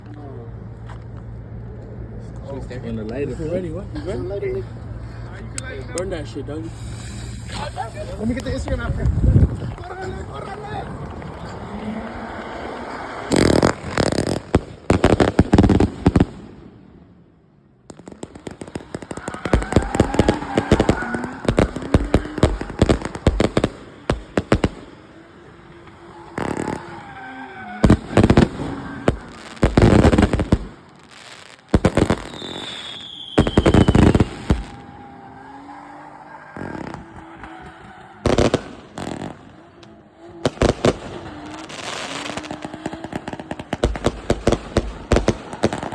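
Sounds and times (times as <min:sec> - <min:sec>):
fireworks shots and crackle: 0:05.6 - 0:45.9
falling firework whistle: 0:06.0 - 0:08.8, 0:18.6 - 0:39.6, 0:40.3 - 0:45.9.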